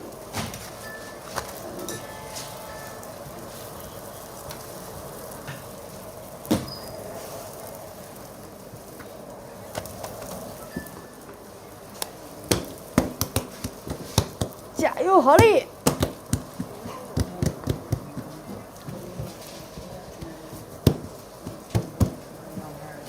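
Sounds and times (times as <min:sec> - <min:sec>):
food sizzling in hot oil: 0:00.0 - 0:16.7.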